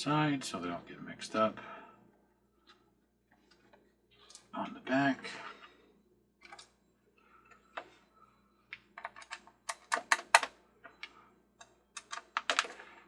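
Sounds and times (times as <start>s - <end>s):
plastic parts clicking and tapping: 8.7s - 12.9s.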